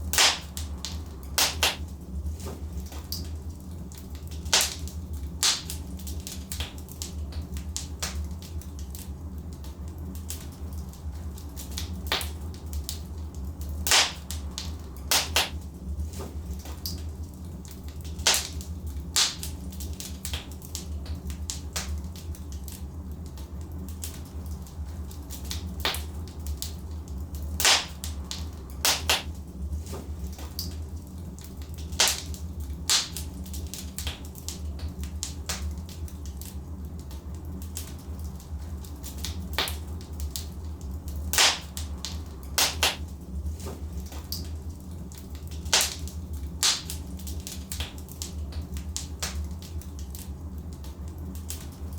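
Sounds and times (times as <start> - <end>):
logs crackling in a fireplace: 0.0 - 51.9
steady low rumble: 0.0 - 51.9
sharp pops of burning wood: 0.1 - 1.9, 4.3 - 8.3, 13.8 - 15.6, 18.0 - 22.7, 27.6 - 30.8, 31.7 - 36.1, 41.3 - 44.4, 45.5 - 49.6.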